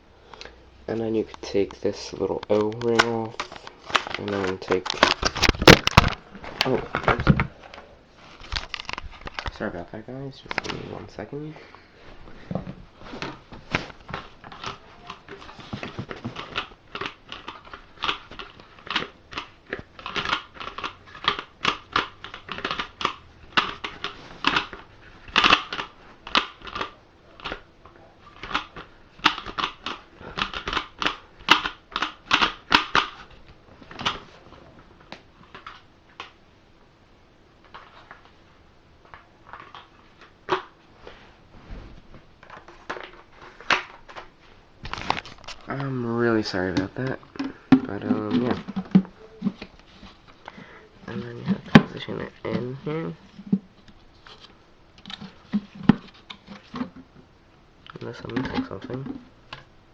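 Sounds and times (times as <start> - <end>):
plastic parts clicking and rattling: 2.3 - 7.8, 8.4 - 9.8, 13.2 - 34.3, 39.0 - 40.8, 42.4 - 45.9, 46.5 - 59.7.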